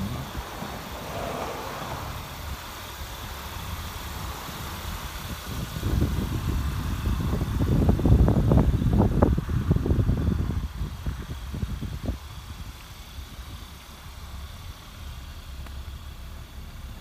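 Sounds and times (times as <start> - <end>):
irregular low rumbling: 0.0 - 3.9
car engine idling: 0.0 - 17.0.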